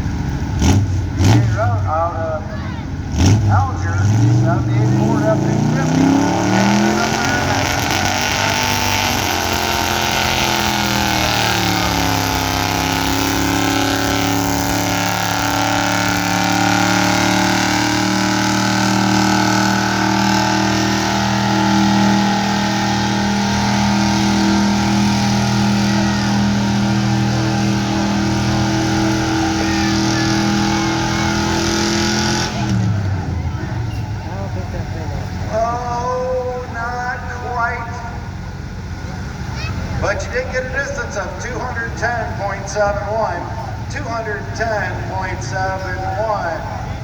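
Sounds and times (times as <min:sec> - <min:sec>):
pickup engine at high revs: 0:00.0 - 0:47.0.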